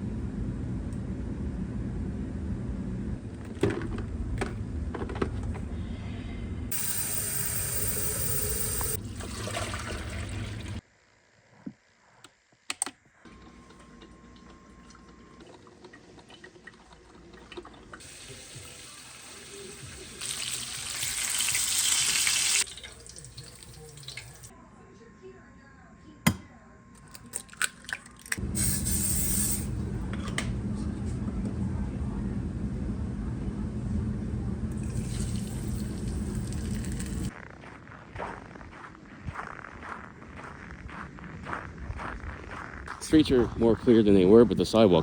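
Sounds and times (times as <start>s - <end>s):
water running from a tap: 6.7s - 10.8s, 15.4s - 24.5s, 34.7s - 37.3s.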